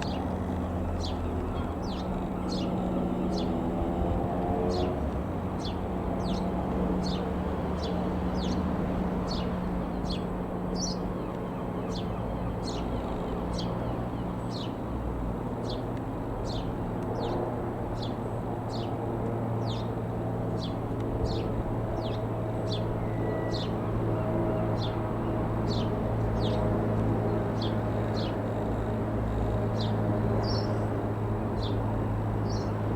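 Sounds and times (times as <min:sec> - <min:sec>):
bird calling: 0:00.0 - 0:03.8
low engine drone: 0:00.0 - 0:32.9.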